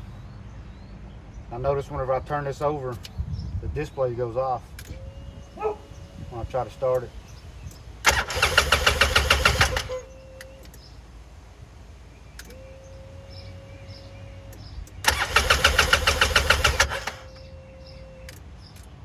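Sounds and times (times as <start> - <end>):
electric starter cranking engine: 8.0 - 10.1, 15.0 - 17.4.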